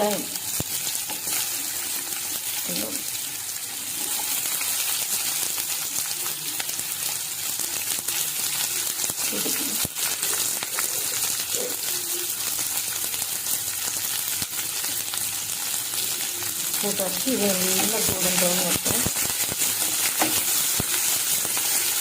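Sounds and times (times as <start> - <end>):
onions sizzling in hot oil: 0.0 - 22.0.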